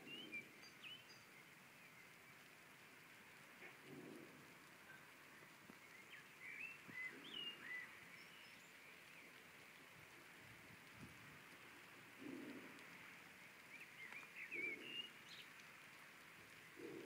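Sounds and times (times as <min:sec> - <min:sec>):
bird chirping: 0:00.0 - 0:02.5, 0:04.8 - 0:09.4, 0:13.6 - 0:15.6.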